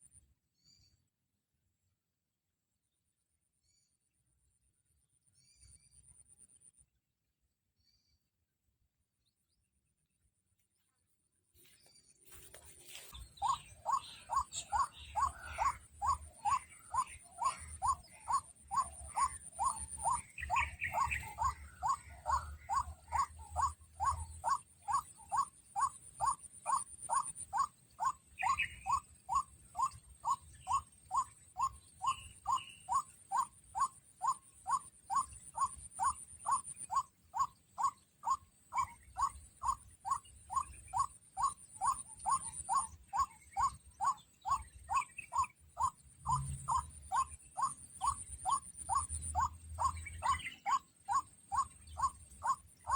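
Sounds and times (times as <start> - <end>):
waterhen calling: 12.9 - 52.9.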